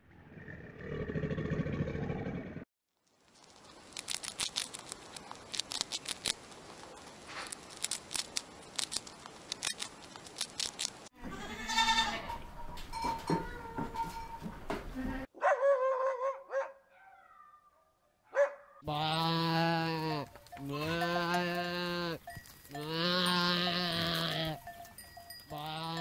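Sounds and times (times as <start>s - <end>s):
hamster nibbling food: 3.4s - 11.1s.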